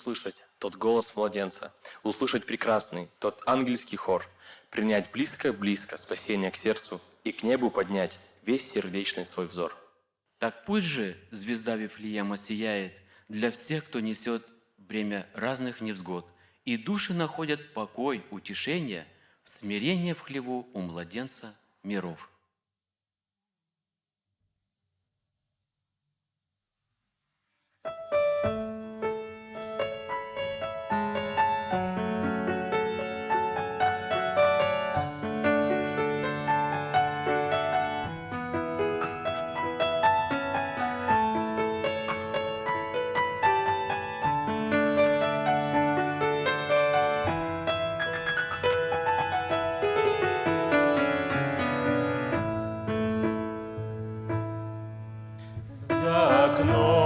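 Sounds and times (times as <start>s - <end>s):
gentle piano melody over chords: 27.9s - 55.9s
person singing: 55.7s - 57.0s.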